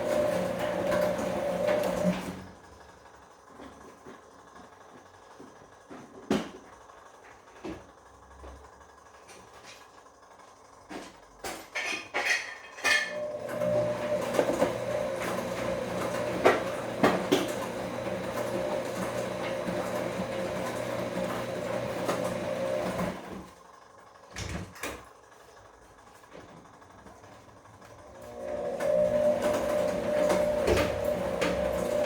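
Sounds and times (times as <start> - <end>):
washing machine motor hum: 0.0 - 32.0.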